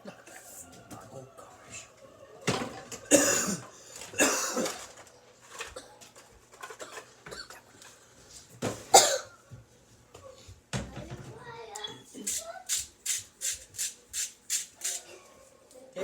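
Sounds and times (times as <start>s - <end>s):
person coughing: 3.1s - 4.8s, 8.9s - 9.4s.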